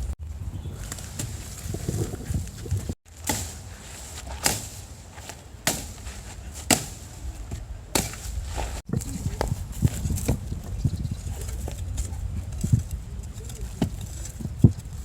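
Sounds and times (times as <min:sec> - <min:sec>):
sharp chopping blows: 0:00.8 - 0:08.8.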